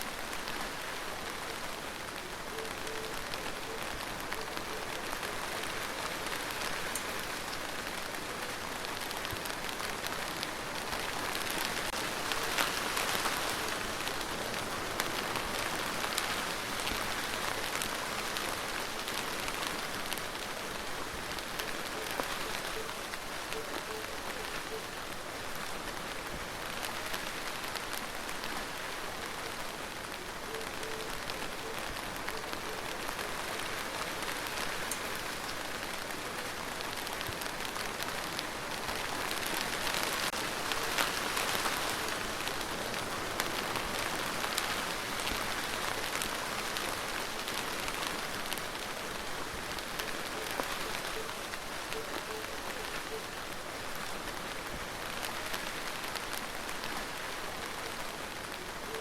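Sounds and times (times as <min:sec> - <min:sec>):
rain pattering: 0:00.0 - 0:59.0.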